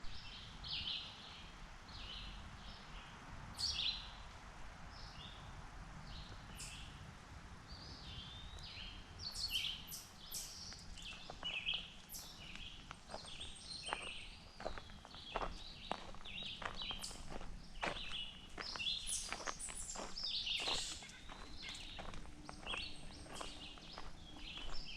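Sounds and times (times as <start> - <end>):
birds chirping and calling: 9.3 - 24.9.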